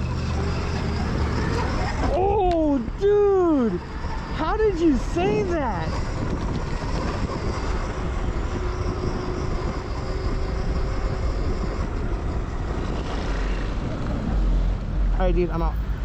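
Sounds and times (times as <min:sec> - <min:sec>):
tyre noise: 0:00.0 - 0:15.2
electric motor whine: 0:00.0 - 0:16.0
wind rush on microphone: 0:00.0 - 0:16.0.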